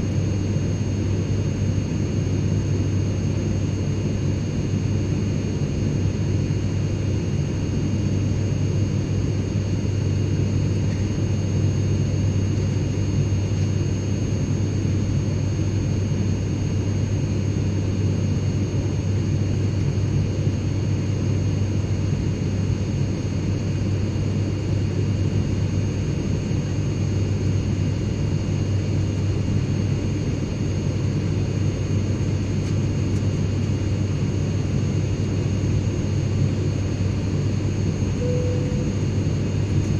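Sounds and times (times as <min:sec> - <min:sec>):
airplane cabin engine drone: 0:00.0 - 0:39.9
faint high steady tones: 0:38.2 - 0:39.2.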